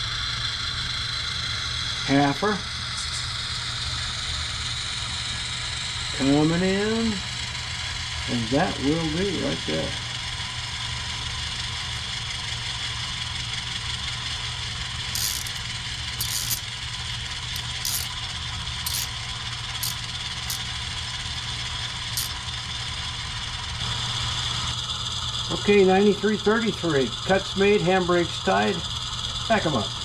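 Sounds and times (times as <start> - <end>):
model locomotive humming: 11.0 - 23.8
short clicks and rattles: 15.2 - 16.7, 17.5 - 18.2, 18.9 - 19.2, 19.8 - 20.8.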